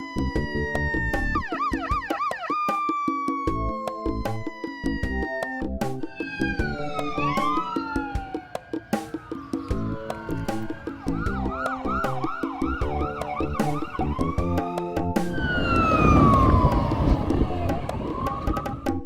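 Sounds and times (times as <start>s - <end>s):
emergency siren: 6.1s - 19.0s.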